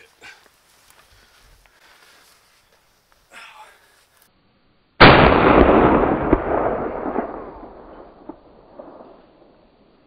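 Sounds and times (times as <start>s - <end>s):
rifle shot with rolling tail: 5.0s - 9.8s.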